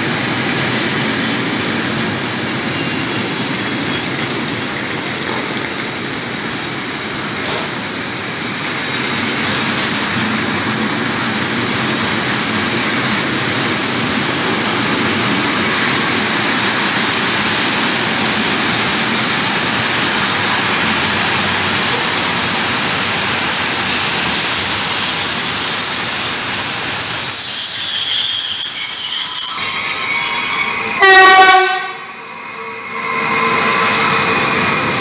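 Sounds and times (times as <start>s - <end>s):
high wheel squeal: 20.1s - 35.0s
locomotive horn blast: 30.9s - 32.9s.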